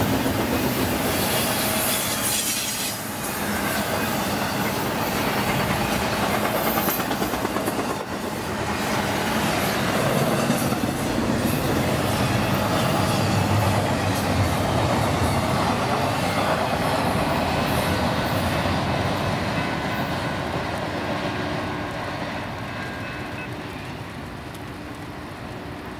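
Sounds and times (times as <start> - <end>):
freight cars rolling on rails: 0.0 - 25.9.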